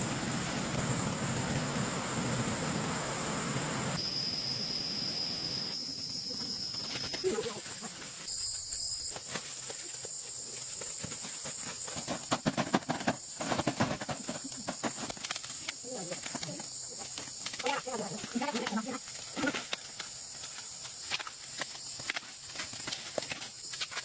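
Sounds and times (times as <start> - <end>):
insects droning: 0.0 - 24.0
rustling and crackling: 6.6 - 24.0.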